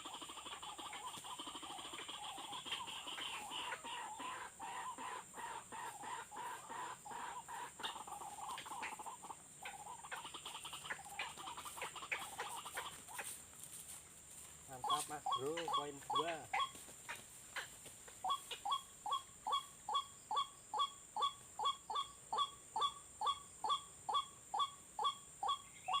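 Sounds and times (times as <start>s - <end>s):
waterhen calling: 0.0s - 13.4s, 14.7s - 26.0s.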